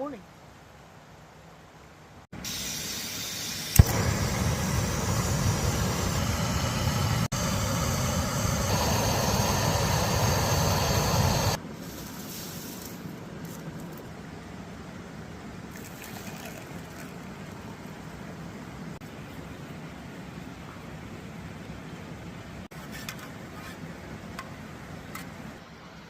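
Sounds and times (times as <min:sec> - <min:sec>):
stove burner hissing: 0:02.4 - 0:13.0.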